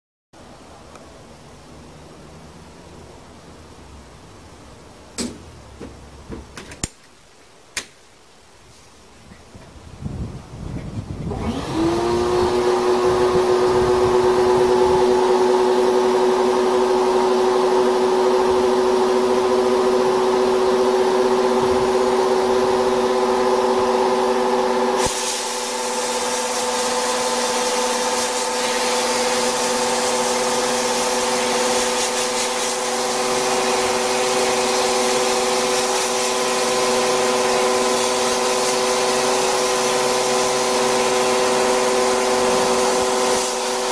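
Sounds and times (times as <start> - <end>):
electric power tool whine: 11.2 - 43.9
hissing scrape on steel: 25.0 - 32.9.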